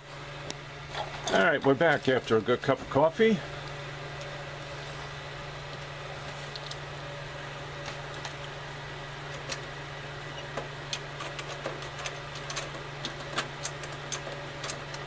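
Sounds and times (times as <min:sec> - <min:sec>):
steady low hum: 0:00.0 - 0:15.0
tools clicking and tapping on metal: 0:10.3 - 0:15.0.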